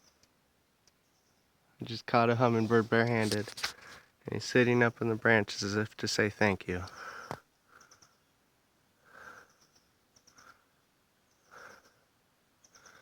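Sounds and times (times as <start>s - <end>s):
faint high chirping: 9.3s - 13.0s.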